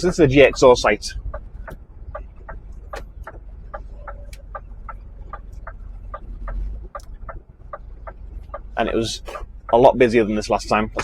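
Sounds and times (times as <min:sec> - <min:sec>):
diesel engine running: 0:00.0 - 0:11.0
truck indicator clicking: 0:00.0 - 0:11.0.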